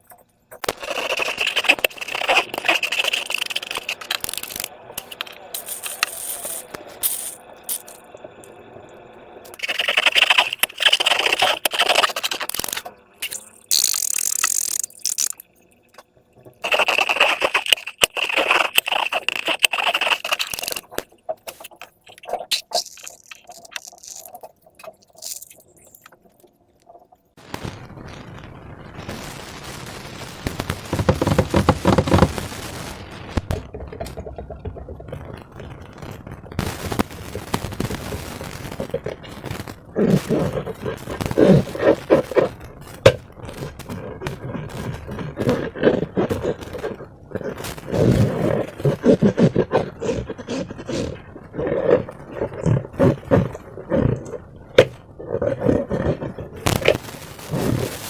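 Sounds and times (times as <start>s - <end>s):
slime squishing wet crackling: 0.0s - 7.1s, 16.6s - 27.0s.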